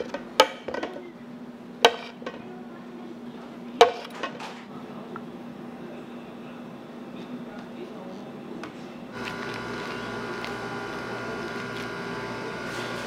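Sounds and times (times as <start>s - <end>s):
low machine hum: 4.7s - 13.0s.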